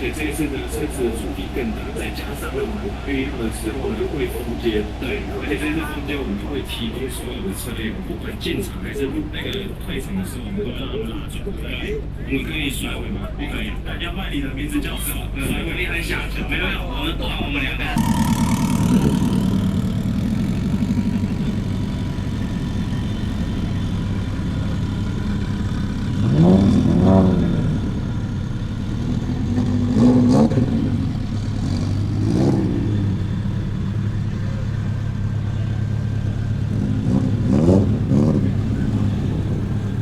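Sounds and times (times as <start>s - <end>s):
car engine revving: 17.8s - 40.0s.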